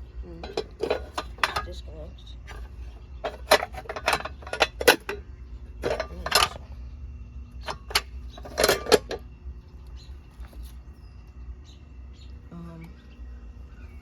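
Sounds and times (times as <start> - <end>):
steady low rumble: 0.0 - 14.0
metallic clinks and rattles: 0.3 - 5.2, 5.8 - 6.7, 7.6 - 9.2.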